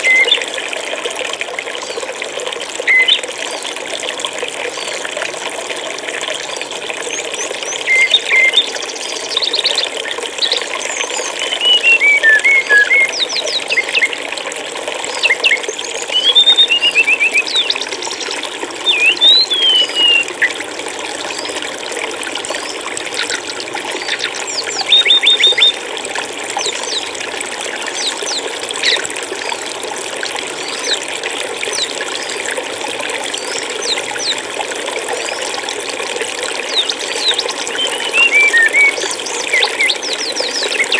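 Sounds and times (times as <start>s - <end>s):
running water: 0.0s - 40.9s
songbirds chirping: 2.8s - 3.7s, 7.2s - 14.2s, 15.2s - 20.6s, 36.7s - 40.9s.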